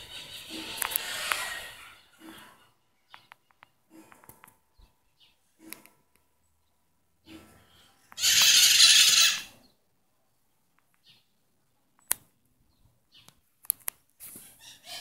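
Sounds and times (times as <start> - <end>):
harsh bird call: 8.2 - 9.7.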